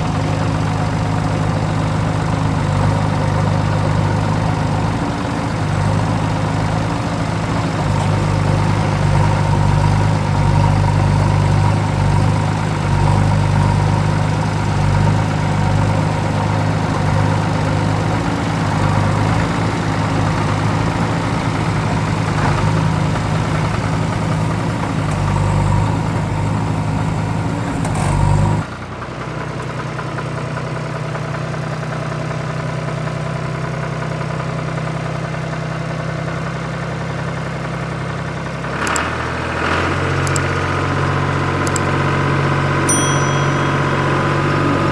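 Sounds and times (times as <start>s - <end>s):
quieter engine idling: 0.0s - 27.8s
vehicle engine idling: 0.0s - 38.8s.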